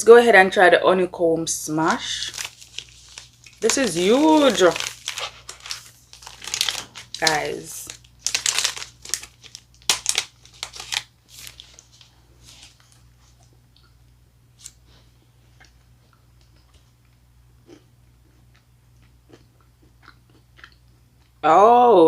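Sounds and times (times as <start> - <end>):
chocolate bar crunching: 2.1 - 11.9, 17.6 - 21.4
quiet chewing: 12.7 - 21.4.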